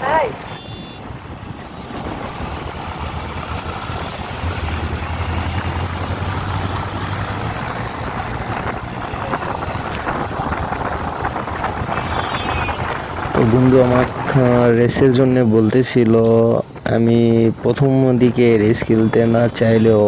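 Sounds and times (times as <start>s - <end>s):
wind noise on microphone: 0.1s - 15.6s.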